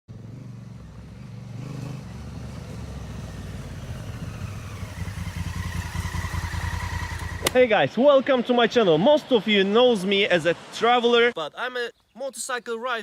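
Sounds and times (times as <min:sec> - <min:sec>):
motorcycle engine running: 0:00.1 - 0:07.7.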